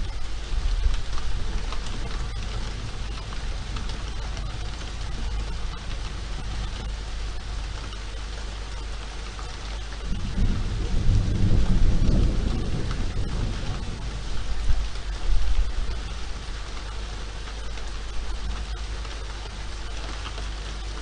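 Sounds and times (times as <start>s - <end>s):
rain falling on street: 0.0s - 21.0s
thunder rumble: 10.0s - 16.8s.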